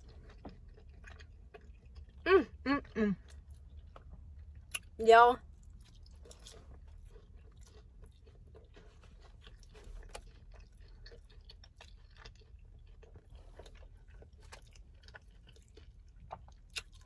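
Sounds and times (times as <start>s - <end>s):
low steady hum: 0.0s - 17.0s
wet chewing clicks: 5.6s - 17.0s.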